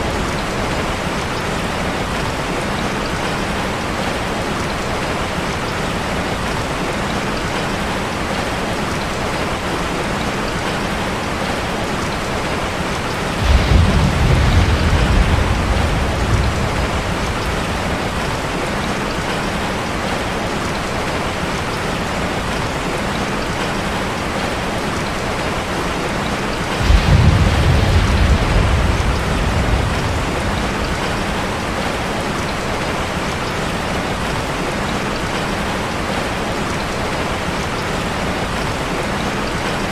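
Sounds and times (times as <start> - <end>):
rain on a metal roof: 0.0 - 39.9
thunder rolling: 13.2 - 19.6, 26.6 - 32.6.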